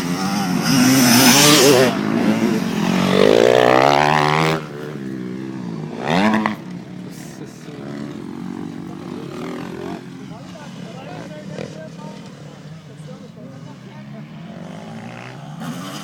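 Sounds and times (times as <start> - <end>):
motocross engine revving hard: 0.0 - 6.7, 14.5 - 16.0.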